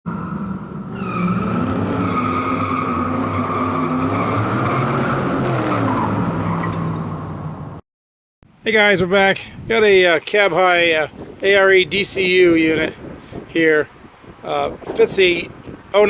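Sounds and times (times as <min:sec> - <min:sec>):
car tires squealing: 0:00.1 - 0:07.0
car engine revving: 0:00.1 - 0:07.8.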